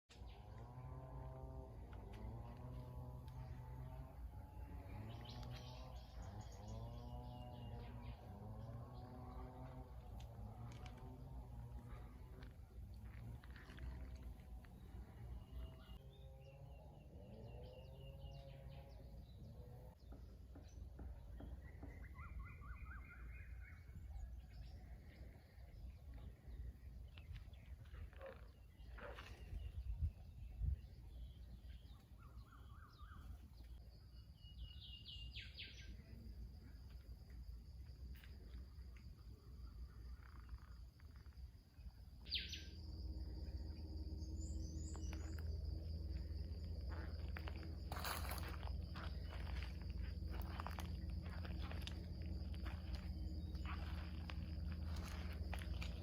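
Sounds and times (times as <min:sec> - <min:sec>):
birds chirping: 0:00.1 - 0:37.2, 0:37.8 - 0:56.0
steady low rumble: 0:01.3 - 0:16.9, 0:36.6 - 0:56.0
insects trilling: 0:34.4 - 0:56.0.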